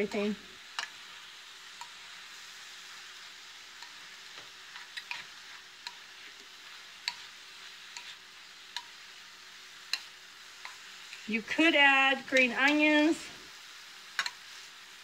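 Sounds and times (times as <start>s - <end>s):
food sizzling in a skillet: 0.0s - 15.0s
utensil clicking against pan: 0.7s - 1.0s, 1.8s - 2.0s, 3.8s - 7.3s, 7.9s - 9.0s, 9.9s - 11.3s, 14.1s - 14.4s.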